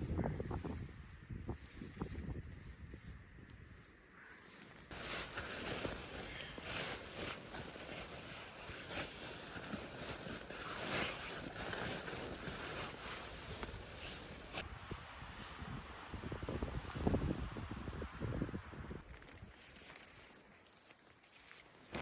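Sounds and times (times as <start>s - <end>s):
gusting blizzard wind: 4.8s - 19.3s.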